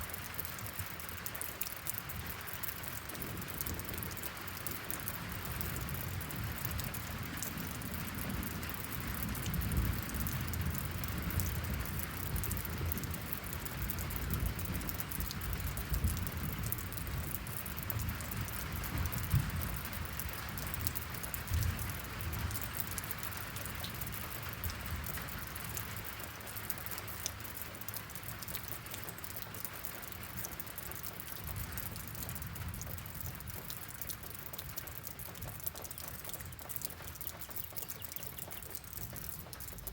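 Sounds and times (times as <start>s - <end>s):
steady rain pattering: 0.0s - 39.9s.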